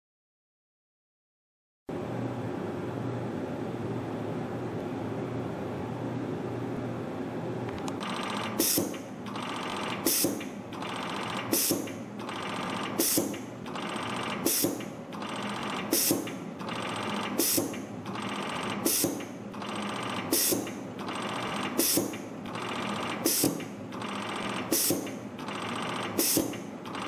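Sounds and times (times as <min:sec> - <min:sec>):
machine whirring: 0:07.8 - 0:27.0
sharp high machine bursts: 0:08.0 - 0:27.0.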